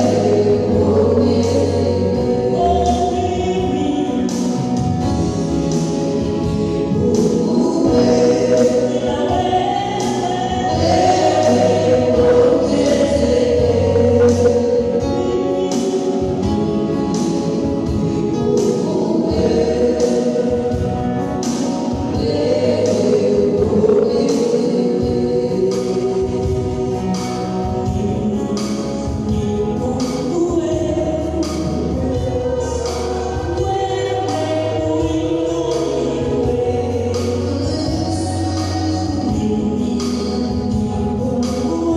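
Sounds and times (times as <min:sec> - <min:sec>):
bass line: 0:00.0 - 0:15.6, 0:22.1 - 0:28.3
band with percussion beat: 0:00.0 - 0:41.9
choir singing: 0:07.0 - 0:16.4, 0:17.4 - 0:21.0, 0:22.2 - 0:26.3.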